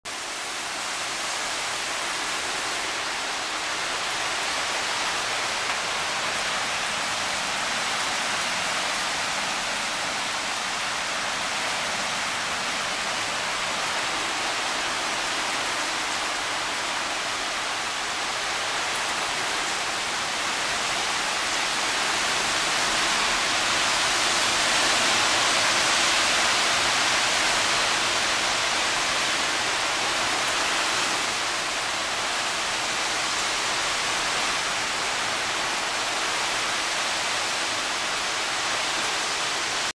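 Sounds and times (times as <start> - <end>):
heavy rain pouring: 0.1 - 39.9.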